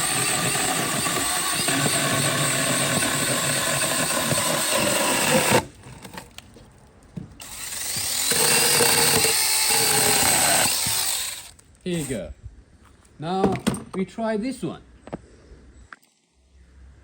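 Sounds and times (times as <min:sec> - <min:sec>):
electric chainsaw cutting wood: 0:00.0 - 0:05.7, 0:07.4 - 0:12.2.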